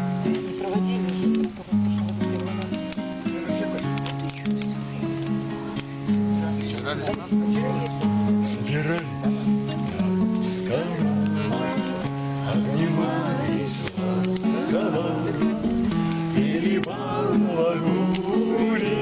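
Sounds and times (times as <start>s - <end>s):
acoustic guitar strummed: 0.0s - 19.0s
voices: 0.2s - 19.0s.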